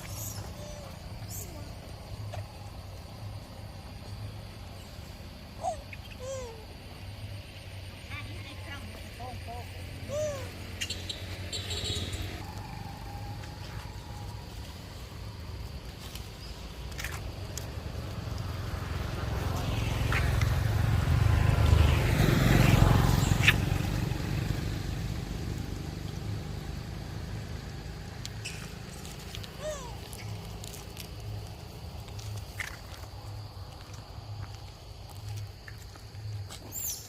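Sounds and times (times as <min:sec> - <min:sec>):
vehicle engine passing by: 0:00.0 - 0:15.6, 0:17.2 - 0:37.0.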